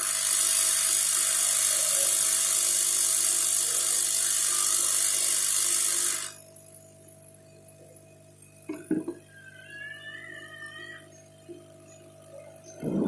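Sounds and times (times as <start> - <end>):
hot-air gun blowing: 0.0 - 6.3.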